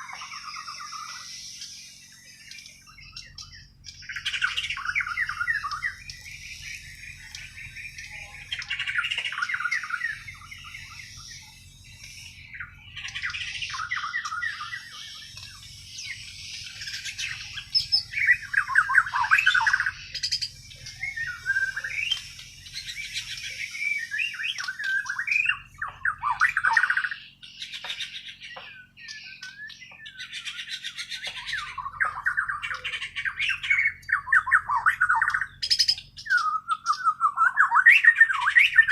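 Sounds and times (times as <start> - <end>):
faint low hum: 0.0 - 38.9
songbird singing whistled phrases: 0.0 - 38.9.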